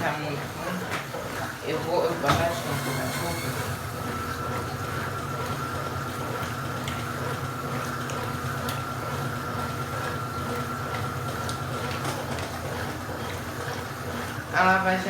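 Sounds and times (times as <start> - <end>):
washing machine motor hum: 0.0 - 15.0
water sloshing in drum: 0.0 - 15.0
steady whine: 2.4 - 4.1.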